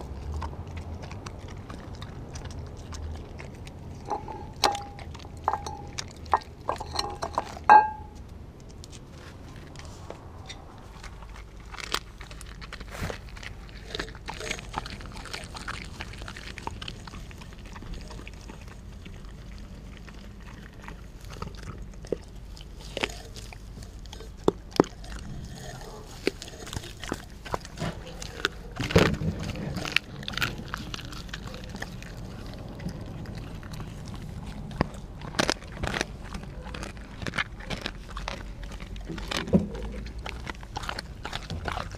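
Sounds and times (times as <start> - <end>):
bone crunching: 0.0 - 41.9
dog chewing wetly: 0.0 - 41.9.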